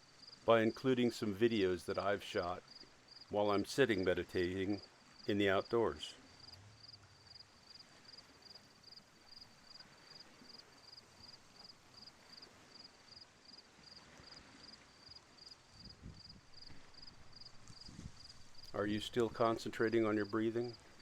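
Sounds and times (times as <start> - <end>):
faint outdoor hush: 0.0 - 21.0
cricket chirping: 0.1 - 0.4, 2.6 - 3.3, 6.2 - 21.0.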